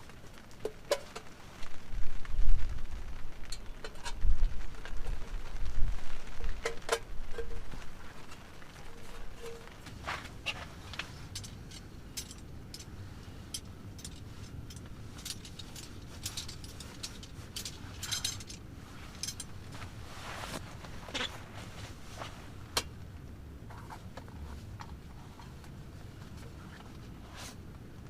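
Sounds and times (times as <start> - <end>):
light clicks and clinks: 6.7 - 19.9.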